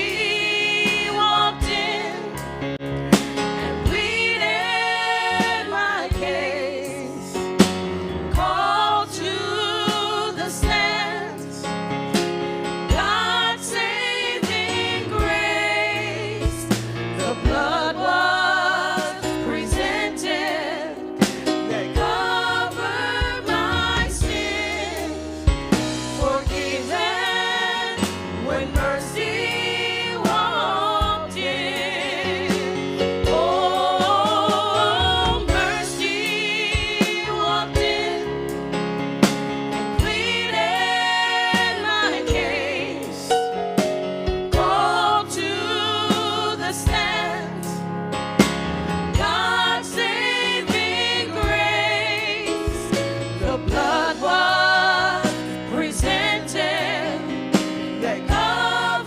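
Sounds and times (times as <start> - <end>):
instrumental backing: 0.0 - 59.0
drum hits: 23.1 - 29.5, 32.5 - 38.1.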